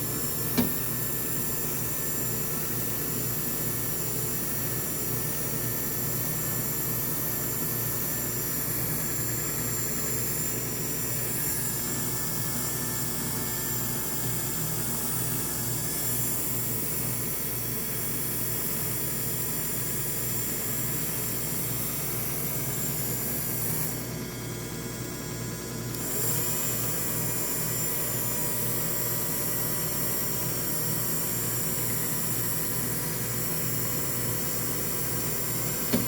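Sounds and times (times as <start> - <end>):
washing machine motor humming: 0.0 - 18.4, 20.5 - 36.0.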